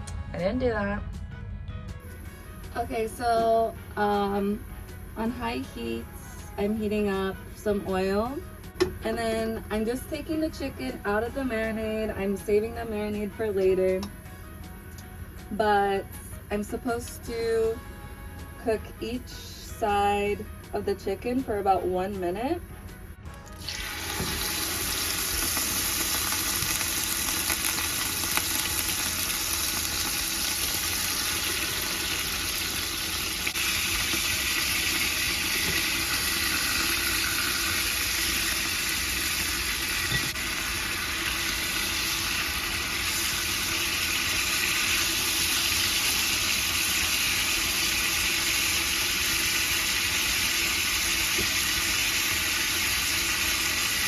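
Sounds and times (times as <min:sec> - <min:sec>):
chicken sizzling in hot oil: 0:23.3 - 0:54.0.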